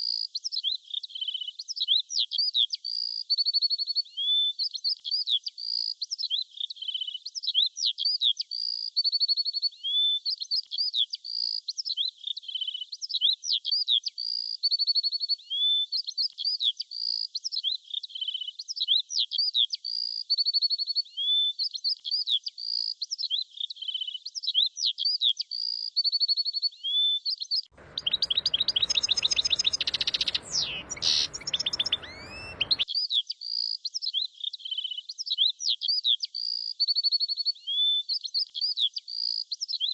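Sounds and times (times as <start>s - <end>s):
rushing noise: 27.8s - 32.8s
songbirds chirping and trilling: 27.8s - 32.8s.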